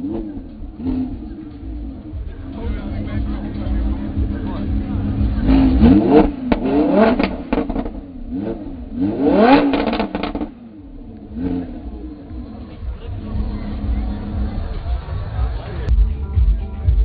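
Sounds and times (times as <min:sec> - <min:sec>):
sports car engine revving: 0:00.0 - 0:16.0
exhaust crackles and pops: 0:00.0 - 0:17.0.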